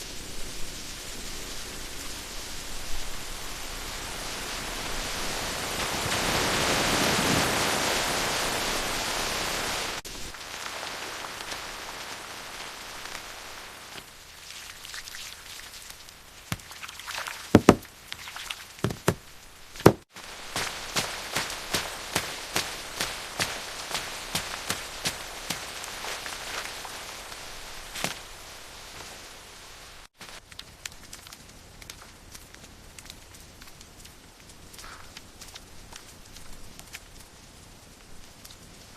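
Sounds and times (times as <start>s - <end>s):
heavy rain falling: 0.0s - 15.1s, 15.8s - 18.1s, 18.7s - 30.4s
sharp knocks: 17.6s - 17.9s, 18.8s - 19.2s, 19.8s - 20.0s.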